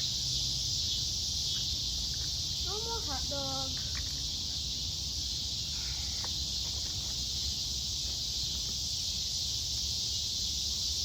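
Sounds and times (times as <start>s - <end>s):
insects chorus: 0.0s - 11.0s.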